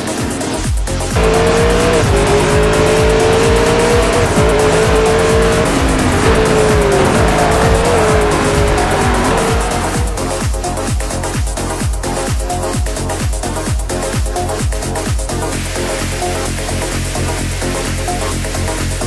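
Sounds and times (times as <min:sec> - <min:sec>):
car tyres squealing: 0:01.2 - 0:10.7
electronic music with steady beat: 0:01.2 - 0:10.8.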